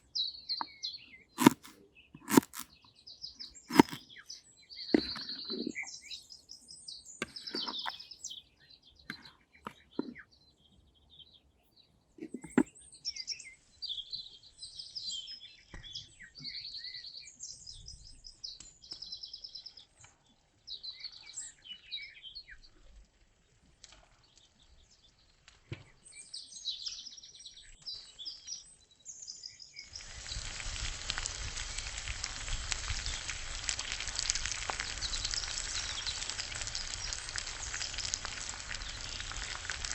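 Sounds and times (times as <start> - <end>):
small birds chirping: 0.0 - 23.6, 24.2 - 39.9
food frying sizzle: 29.9 - 39.9.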